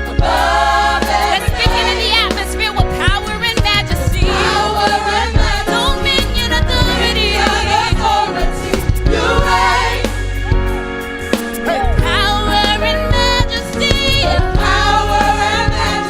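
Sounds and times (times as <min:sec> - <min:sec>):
choir singing: 0:00.0 - 0:02.4, 0:03.7 - 0:10.5, 0:13.7 - 0:16.0
instrumental accompaniment with bass: 0:00.0 - 0:16.0.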